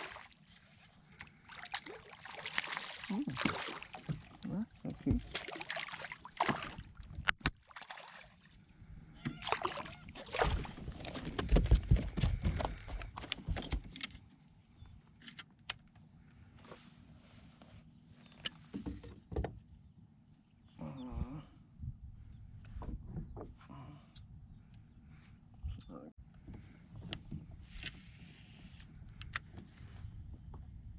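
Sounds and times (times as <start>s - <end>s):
paddling water: 0.0s - 8.6s, 9.2s - 13.6s
high insect drone: 14.0s - 25.7s.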